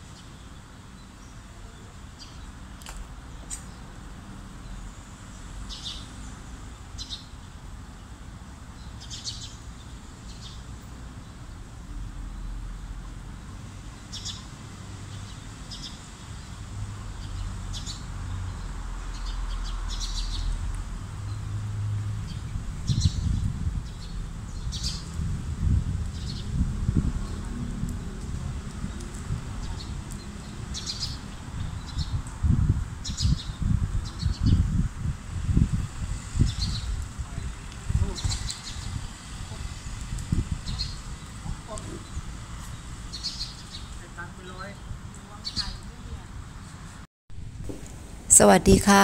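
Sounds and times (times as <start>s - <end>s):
birds chirping: 40.6s - 44.0s
low rumbling noise: 47.3s - 49.0s.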